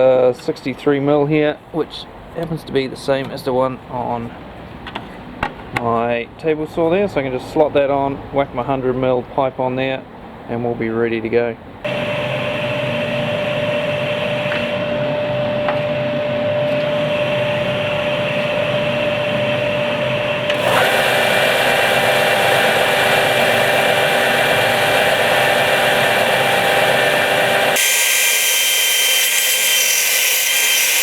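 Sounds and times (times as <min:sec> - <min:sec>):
belt sander motor whining: 0:11.9 - 0:31.0
dust extractor: 0:11.9 - 0:31.0.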